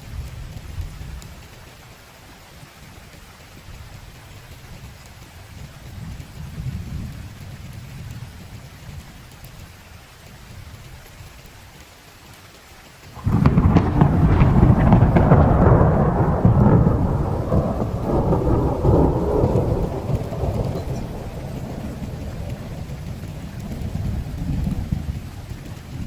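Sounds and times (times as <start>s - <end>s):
heavy rain: 0.0s - 26.0s
thunder rumbling: 13.2s - 26.0s.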